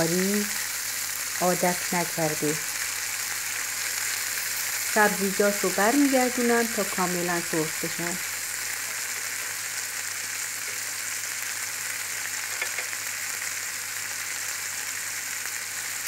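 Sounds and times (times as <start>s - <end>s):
steaks sizzling in oil: 0.0s - 16.0s.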